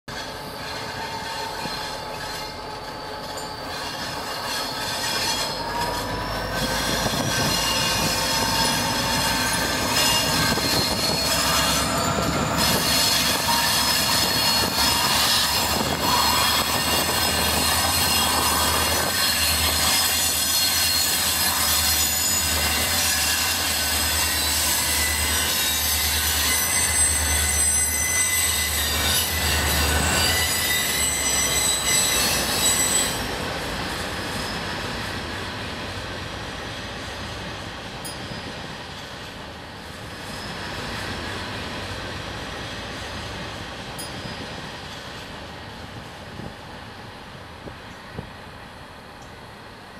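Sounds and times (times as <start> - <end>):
high-pitched wheel squeal: 0.1 - 33.3.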